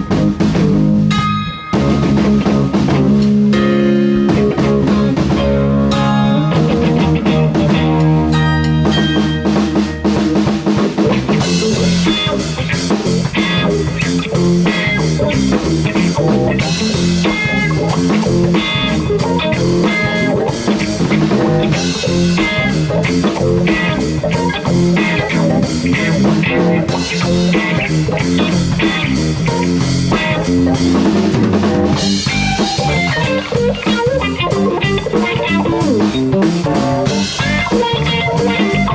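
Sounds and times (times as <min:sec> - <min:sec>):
bass guitar: 0:00.0 - 0:38.9
drum kit: 0:00.0 - 0:38.9
electric guitar: 0:00.0 - 0:38.9.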